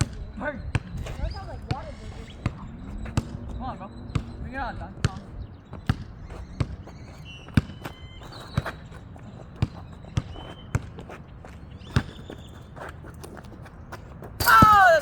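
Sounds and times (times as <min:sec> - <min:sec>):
basketball bouncing on court: 0:00.0 - 0:01.0, 0:05.0 - 0:06.8, 0:07.5 - 0:07.9, 0:09.6 - 0:11.0, 0:14.4 - 0:15.0.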